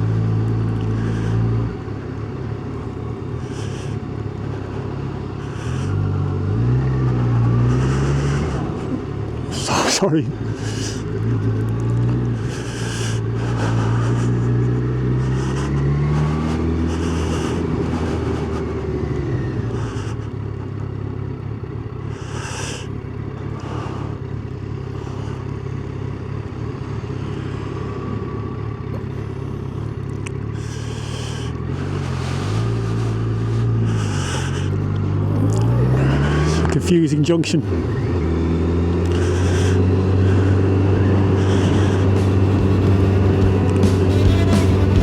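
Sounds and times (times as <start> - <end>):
motorcycle engine running: 0.0 - 45.0
rushes of noise: 0.8 - 20.8, 29.0 - 36.9, 37.6 - 45.0.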